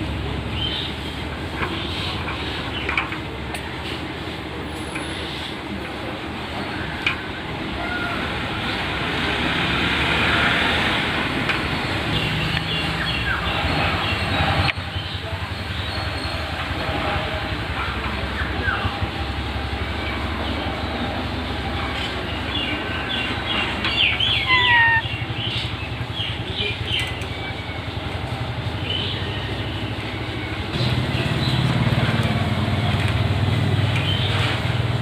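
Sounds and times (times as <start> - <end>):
parrot chirps and whistles: 24.2 - 25.1.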